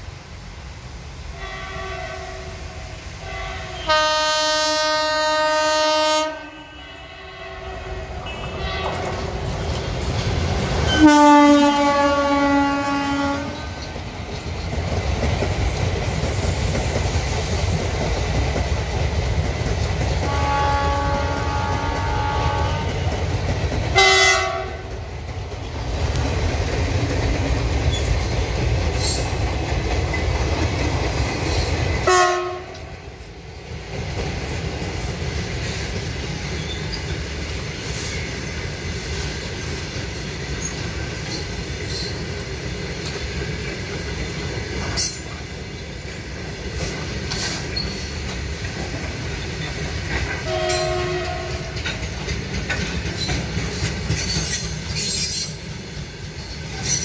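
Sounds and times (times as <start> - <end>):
train coaches rumbling: 0.0 - 57.0
locomotive horn blasts: 1.4 - 9.1, 10.9 - 13.8, 20.3 - 23.0, 24.0 - 24.9, 32.0 - 32.9, 50.4 - 51.8
wheels clacking over rail joints: 8.2 - 57.0.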